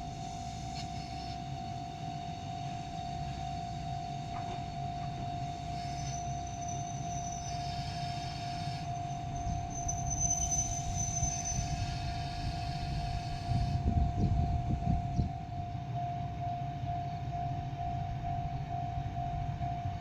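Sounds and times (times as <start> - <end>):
diesel railcar rumble: 0.0 - 20.0
steady high pulsing tone: 0.0 - 20.0
train wheel knocks: 4.3 - 5.2.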